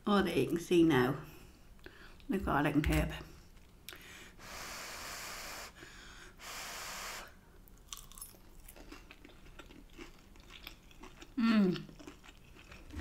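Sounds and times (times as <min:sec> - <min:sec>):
soft chewing: 0:07.9 - 0:13.0.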